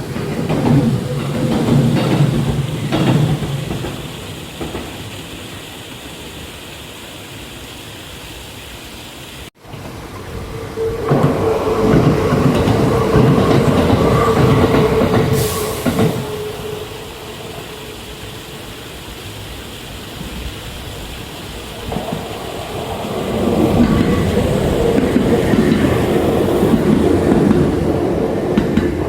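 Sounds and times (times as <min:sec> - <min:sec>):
wheels clacking over rail joints: 0:00.0 - 0:06.0, 0:09.6 - 0:29.0
electric train hum: 0:00.0 - 0:06.5, 0:09.6 - 0:29.0.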